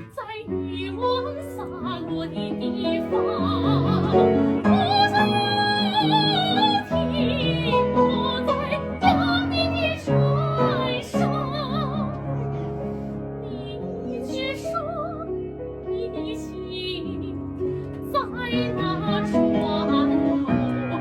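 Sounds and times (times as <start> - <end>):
soprano singing operatically: 0.0 - 12.4, 13.4 - 21.0
piano accompaniment: 0.0 - 21.0.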